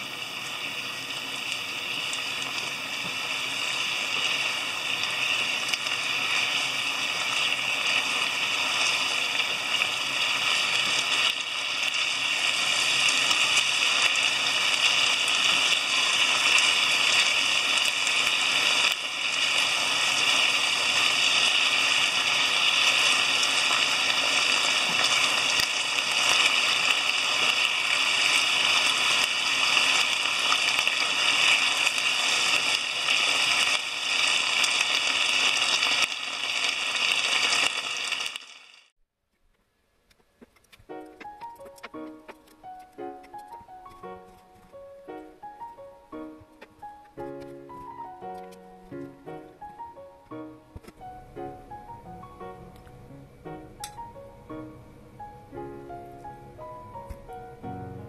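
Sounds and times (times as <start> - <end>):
food sizzling in a frying pan: 0.0 - 39.0.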